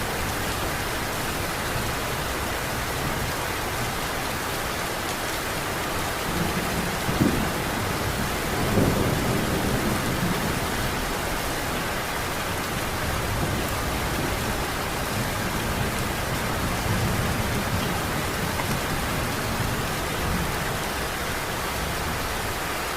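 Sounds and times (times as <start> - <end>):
heavy rain falling: 0.0 - 22.9
low rumbles of thunder: 6.3 - 21.1.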